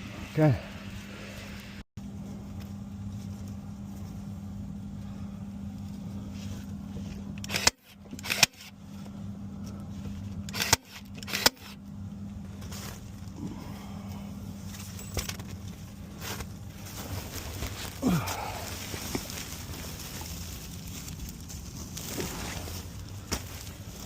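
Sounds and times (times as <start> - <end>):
house fan humming: 0.0 - 24.0.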